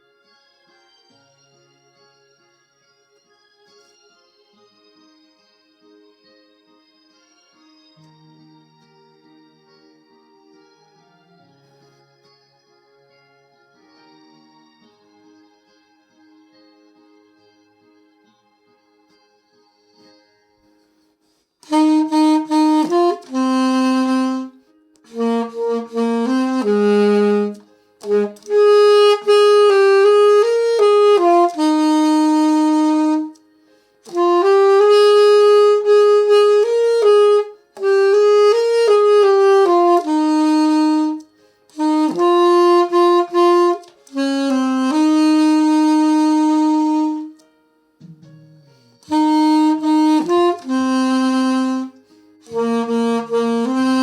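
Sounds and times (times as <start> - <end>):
solo saxophone melody: 21.6 - 33.4, 34.0 - 47.4, 49.0 - 54.0.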